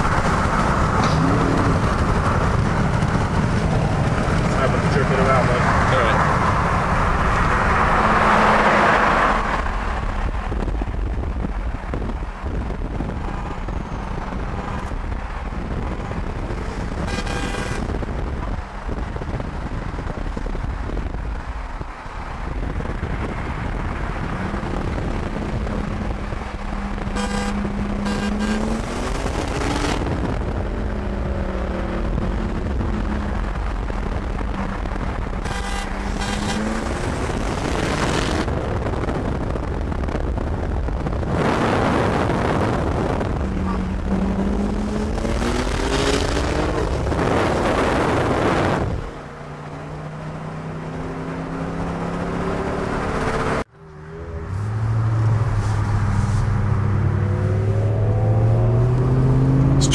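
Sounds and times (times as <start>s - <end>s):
car engine and road noise: 0.0s - 59.9s
short car horn toots: 17.0s - 17.9s, 27.2s - 28.7s, 35.4s - 36.8s.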